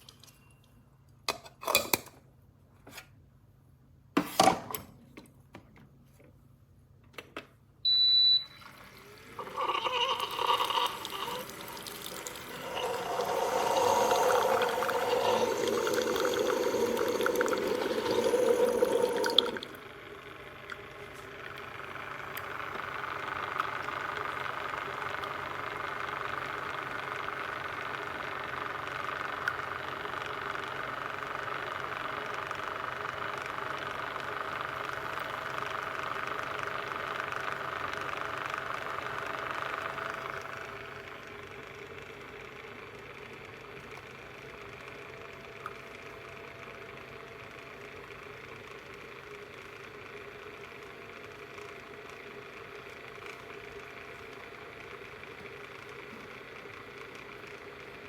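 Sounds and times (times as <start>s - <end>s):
coffee maker beeping: 7.8s - 42.5s, 43.1s - 58.0s
water pumping and gurgling: 8.6s - 27.9s
steady quiet hum: 9.2s - 25.3s.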